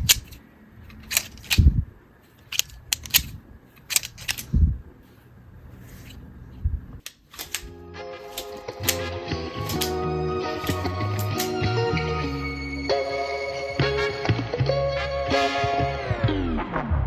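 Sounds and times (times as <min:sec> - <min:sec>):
music: 0:07.7 - 0:17.0.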